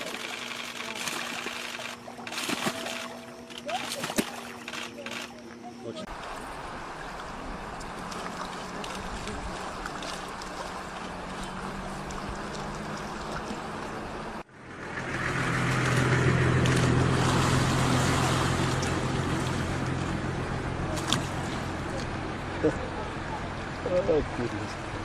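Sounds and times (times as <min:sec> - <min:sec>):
motor running: 0:00.0 - 0:14.4.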